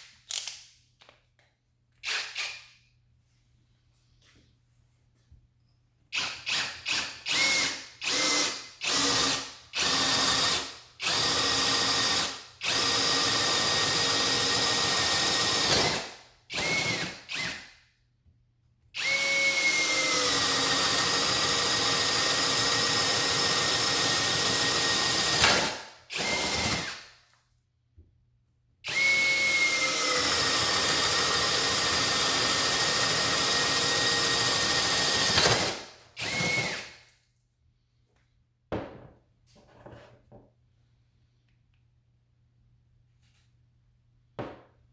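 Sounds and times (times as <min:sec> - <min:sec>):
cordless drill whining: 0:06.2 - 0:17.6, 0:19.0 - 0:27.0, 0:28.9 - 0:37.0.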